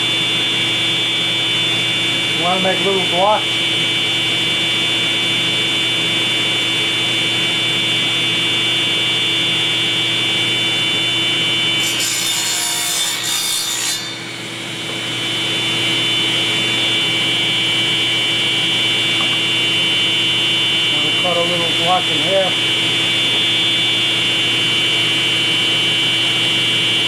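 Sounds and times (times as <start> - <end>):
table saw whine: 0.0 - 27.0
saw blade cutting wood: 11.8 - 15.6.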